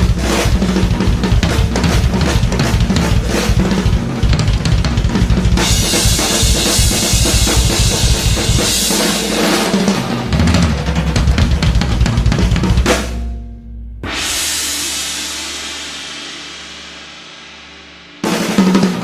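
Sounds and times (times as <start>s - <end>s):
drum kit hits: 0.0s - 16.8s
cymbal wash: 12.9s - 18.6s.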